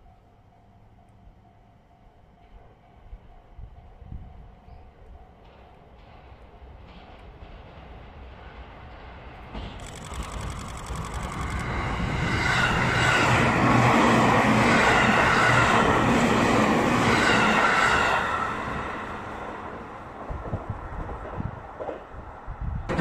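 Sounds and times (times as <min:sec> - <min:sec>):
wheels on rails: 0:05.4 - 0:18.3
train motor whine: 0:09.6 - 0:13.6.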